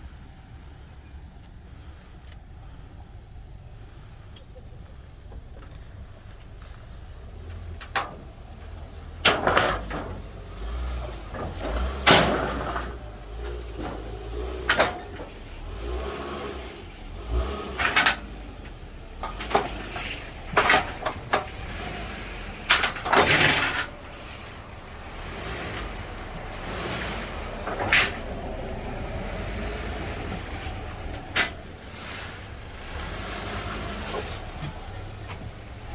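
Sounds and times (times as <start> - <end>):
vehicle engine running low: 0.0 - 35.9
metallic clanks and bangs: 7.7 - 15.6, 17.6 - 35.9.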